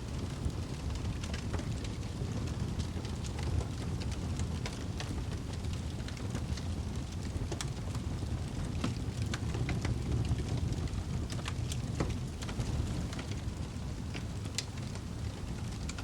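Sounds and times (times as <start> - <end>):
fire popping and snapping: 0.0 - 16.0
flames rumbling: 0.0 - 16.0.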